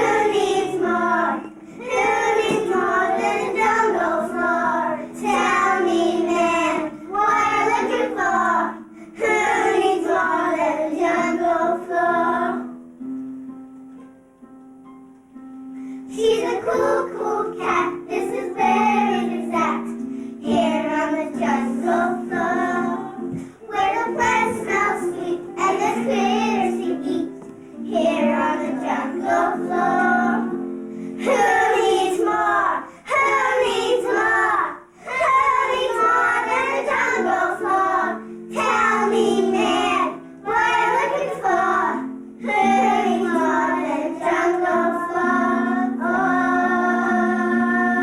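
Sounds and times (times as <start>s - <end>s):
children singing: 0.0s - 12.8s, 16.1s - 48.0s
instrumental accompaniment: 0.0s - 48.0s.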